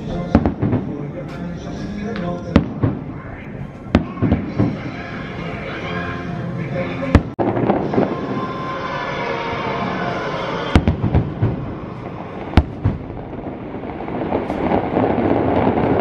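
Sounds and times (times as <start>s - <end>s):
continuous fireworks display noise: 0.0s - 16.0s
fireworks shells bursting: 7.1s - 16.0s.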